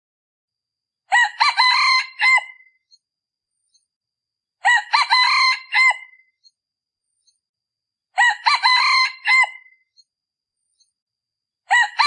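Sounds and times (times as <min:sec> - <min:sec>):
rooster crowing: 0:01.1 - 0:02.7, 0:04.6 - 0:06.2, 0:08.2 - 0:09.8.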